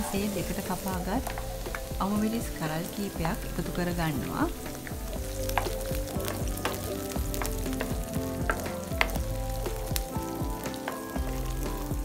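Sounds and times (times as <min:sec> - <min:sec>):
wooden spoon stirring: 0:00.0 - 0:10.1
chillies and garlic sizzling in oil: 0:00.0 - 0:12.0
spitting oil crackles: 0:00.0 - 0:12.0.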